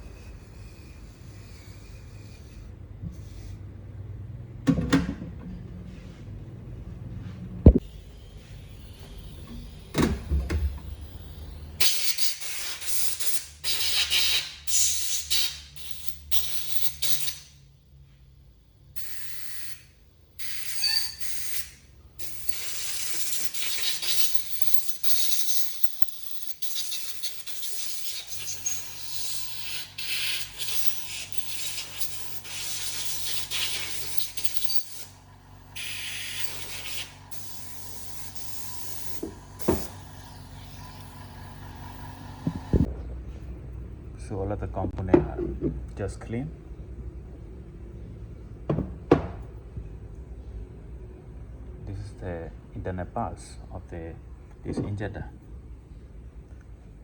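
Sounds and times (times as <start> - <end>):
steady low hum: 0.0 - 12.1, 28.9 - 57.0
hissing spray: 11.1 - 17.4, 20.4 - 35.2, 35.8 - 42.9.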